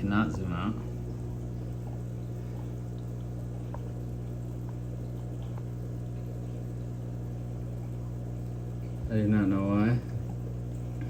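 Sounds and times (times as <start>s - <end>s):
aquarium equipment hum: 0.0s - 11.0s
water trickling: 0.0s - 11.0s
tiny ticks: 4.6s - 6.3s.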